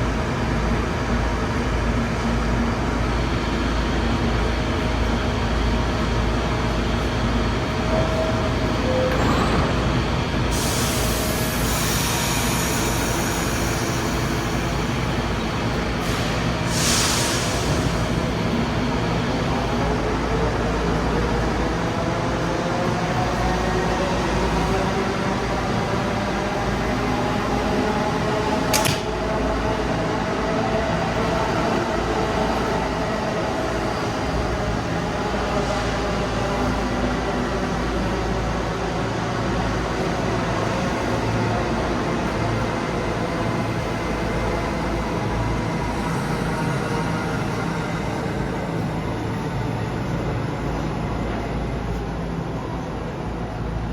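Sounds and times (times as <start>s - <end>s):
subway train rumbling: 0.0s - 53.9s
sharp click: 28.7s - 29.1s.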